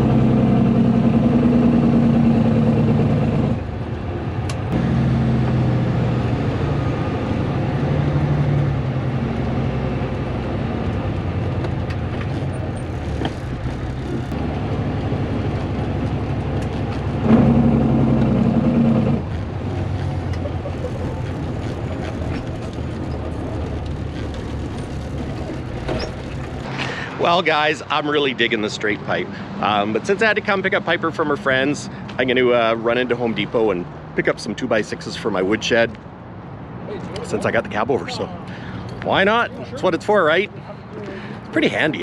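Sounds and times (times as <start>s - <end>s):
loud straight-piped diesel engine: 0.0s - 35.6s, 37.2s - 42.0s.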